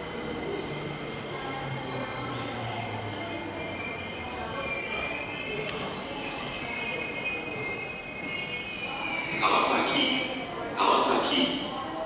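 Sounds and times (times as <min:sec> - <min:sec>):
electric train squealing tones: 0:02.9 - 0:10.8.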